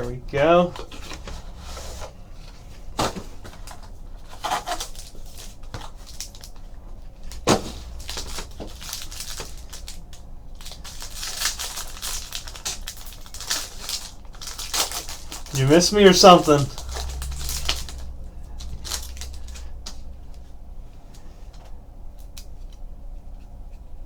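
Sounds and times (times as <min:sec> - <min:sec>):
wrappers crinkling and tearing: 0:07.3 - 0:18.0.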